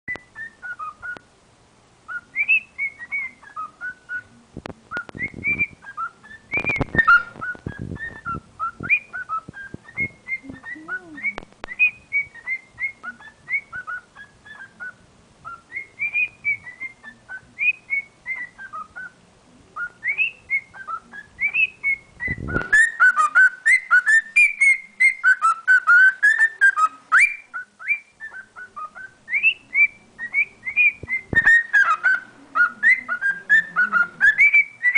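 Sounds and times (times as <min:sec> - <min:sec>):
cockatiel whistling: 0:00.1 - 0:01.2, 0:02.1 - 0:19.2, 0:19.8 - 0:34.9.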